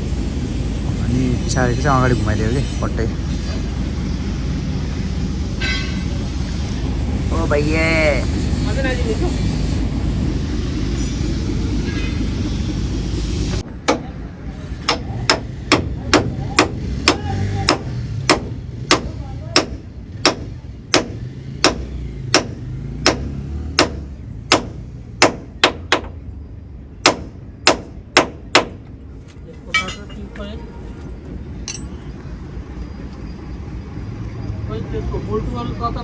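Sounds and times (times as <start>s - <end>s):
hammer striking steel: 14.8s - 26.1s, 29.7s - 30.5s, 31.6s - 32.0s.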